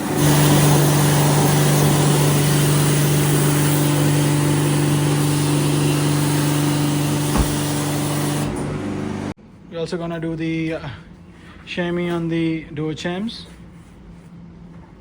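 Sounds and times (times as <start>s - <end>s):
pressure washer motor hum: 0.0s - 9.3s
water spray hissing: 0.2s - 8.5s.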